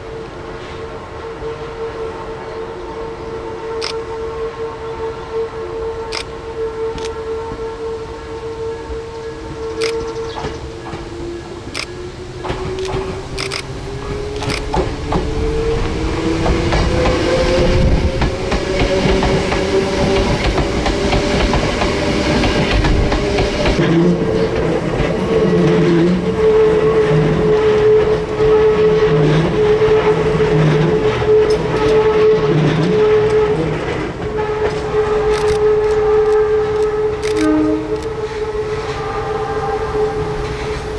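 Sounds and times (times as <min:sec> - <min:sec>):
electric train whining: 0:00.0 - 0:40.9
train rumble: 0:00.0 - 0:40.9
scattered clicks: 0:03.8 - 0:04.0, 0:09.8 - 0:10.5, 0:11.7 - 0:13.8, 0:14.4 - 0:15.2, 0:35.3 - 0:38.2.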